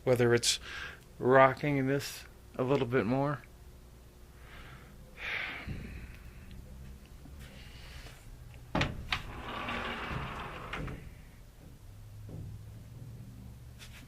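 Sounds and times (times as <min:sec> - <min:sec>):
door rubbing and scraping: 0:08.7 - 0:13.2
glass door knocking: 0:08.8 - 0:13.2.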